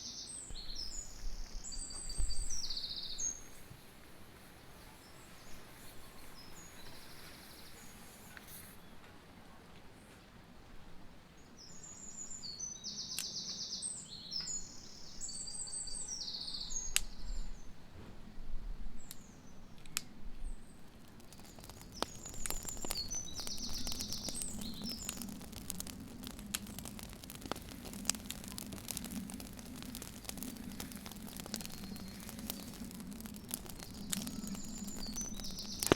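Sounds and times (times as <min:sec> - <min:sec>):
sharp clicks: 0:21.2 - 0:35.9.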